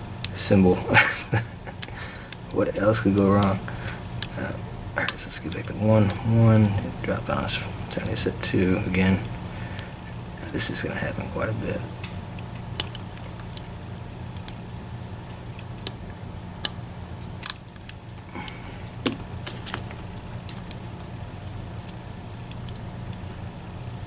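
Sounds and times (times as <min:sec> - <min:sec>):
steady low hum: 0:00.0 - 0:24.0
lock pick metallic clicks: 0:12.4 - 0:13.7, 0:14.3 - 0:14.7, 0:15.3 - 0:23.2.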